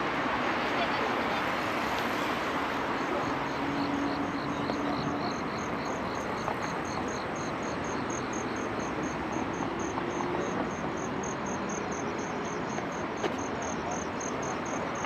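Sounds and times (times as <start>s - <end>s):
city noise hiss: 0.0s - 15.0s
crickets chirping: 0.8s - 15.0s
lower-pitched cricket chirping: 2.0s - 15.0s.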